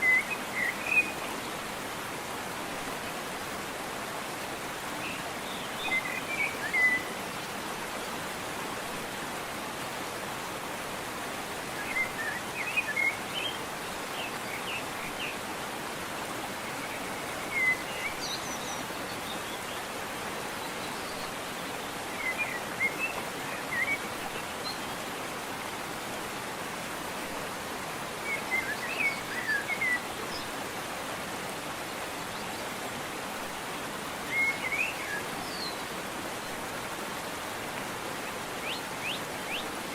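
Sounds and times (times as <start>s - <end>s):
waterfall rushing: 0.0s - 39.9s
songbird chirping: 34.2s - 36.6s.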